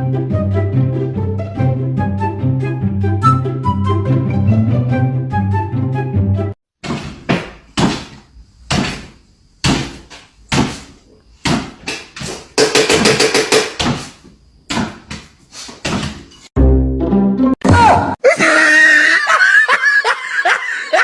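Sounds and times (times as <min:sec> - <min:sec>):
knocks and bangs: 0:06.8 - 0:16.4
fast rattling strikes: 0:11.9 - 0:13.9.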